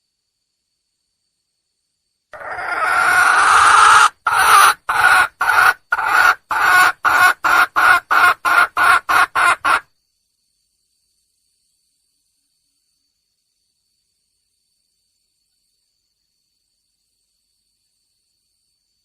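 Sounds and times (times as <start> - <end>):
hen calling: 2.4 - 9.8
hen clucking: 2.4 - 9.8.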